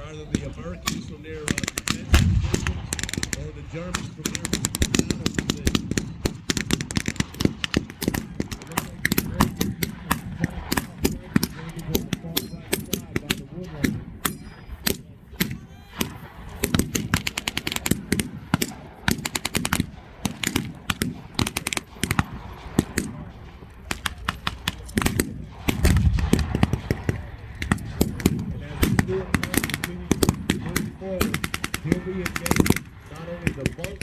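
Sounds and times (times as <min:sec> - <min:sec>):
rifle shots: 0:00.0 - 0:34.0
deep heavy bang: 0:02.0 - 0:06.2, 0:22.0 - 0:32.2.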